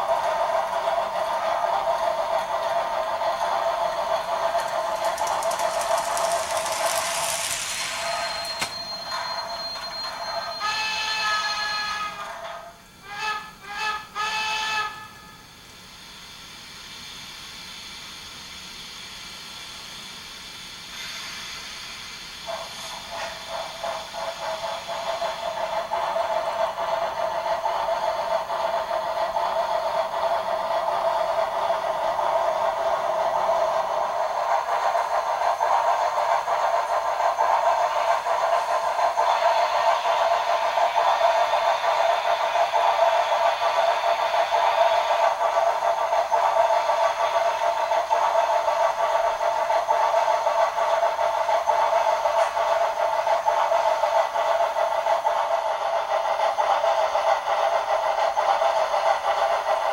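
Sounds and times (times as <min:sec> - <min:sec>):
steam engine chuffing: 0:00.0 - 0:12.1, 0:16.5 - 0:59.9
steam hiss: 0:00.0 - 0:12.1, 0:13.1 - 0:59.9
steam whistle toot: 0:07.4 - 0:12.3, 0:13.0 - 0:15.5.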